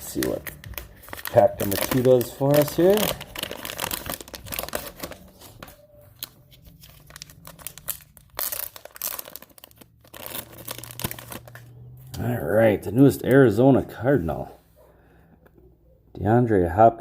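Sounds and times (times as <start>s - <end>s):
wrapper tearing and crinkling: 0.0s - 11.7s.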